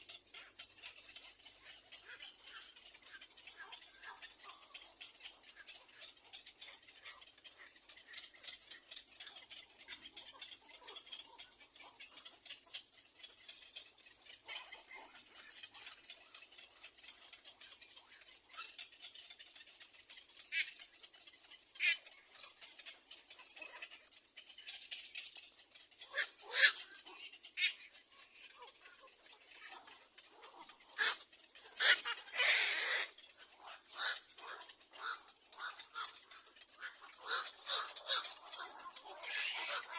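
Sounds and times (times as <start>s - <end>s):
short bird calls: 26.0s - 27.9s, 30.8s - 33.2s.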